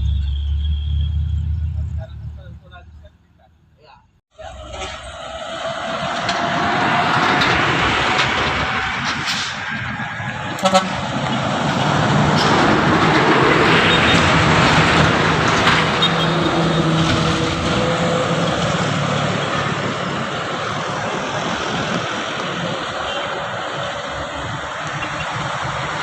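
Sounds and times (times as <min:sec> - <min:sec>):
heavy truck engine: 0:00.0 - 0:03.5, 0:04.3 - 0:26.0
road noise: 0:00.0 - 0:26.0
horn toot: 0:10.4 - 0:12.0.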